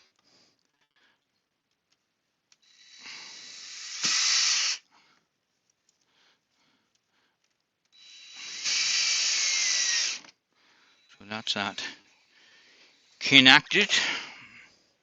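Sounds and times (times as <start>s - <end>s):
power drill driving a screw: 2.6s - 4.8s, 8.0s - 10.3s.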